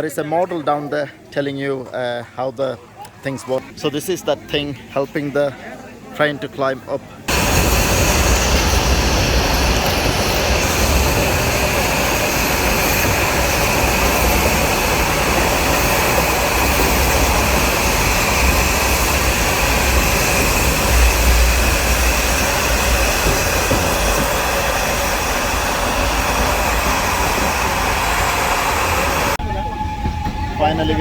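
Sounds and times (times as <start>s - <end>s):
train carriages rumbling and rattling: 7.3s - 31.0s.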